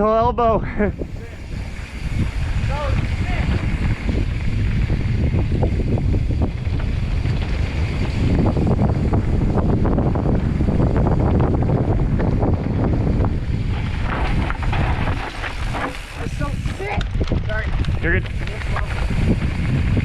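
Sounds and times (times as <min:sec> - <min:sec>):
wind rushing over microphone: 0:00.0 - 0:20.0
bike clicks and rattles: 0:01.0 - 0:20.0
tyres rumbling over rock: 0:12.0 - 0:20.0.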